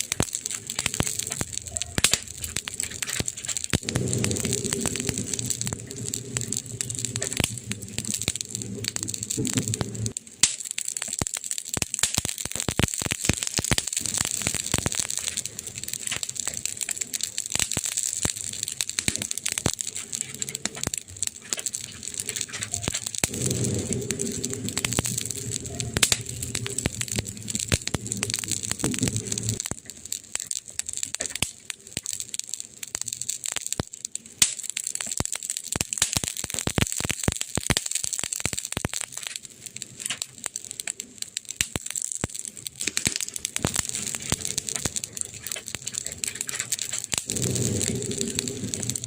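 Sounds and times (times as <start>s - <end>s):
burning wood crackling and popping: 0.0s - 49.0s
low hum: 22.7s - 29.6s.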